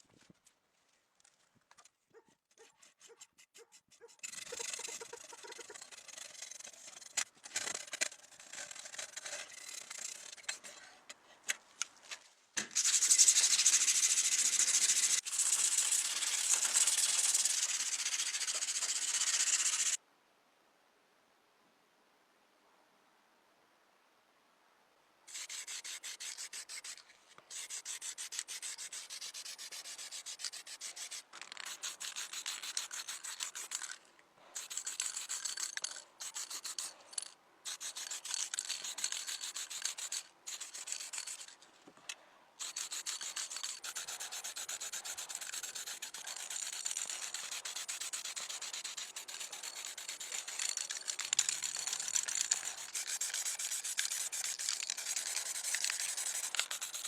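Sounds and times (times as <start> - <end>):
sanding on small metal toy car: 2.8 - 10.9, 12.6 - 20.0, 25.3 - 34.0, 34.6 - 41.6, 42.6 - 57.0.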